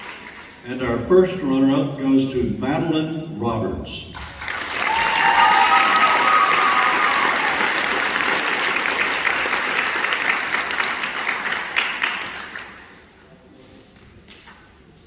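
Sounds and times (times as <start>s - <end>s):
audience applauding: 4.2s - 13.0s.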